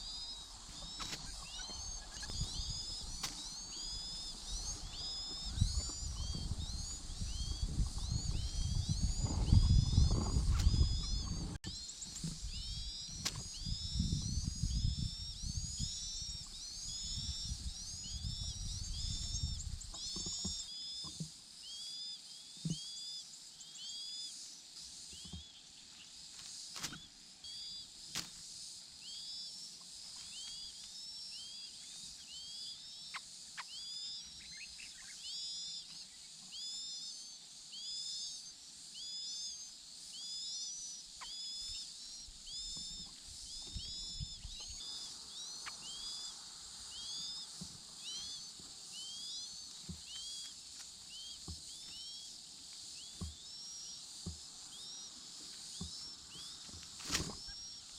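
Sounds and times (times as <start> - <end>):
chicks begging chirps: 0.0 - 11.6, 42.5 - 50.5.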